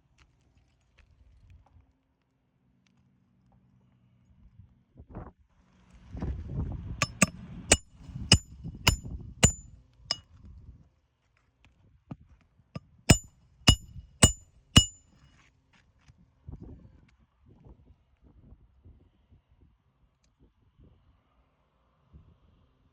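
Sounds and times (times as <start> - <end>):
hammer striking roofing nails: 7.0 - 9.6, 13.1 - 15.0.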